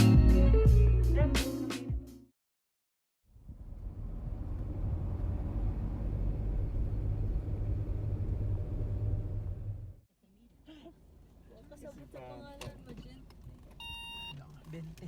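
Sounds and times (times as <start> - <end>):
vehicle rumble: 3.3 - 10.0.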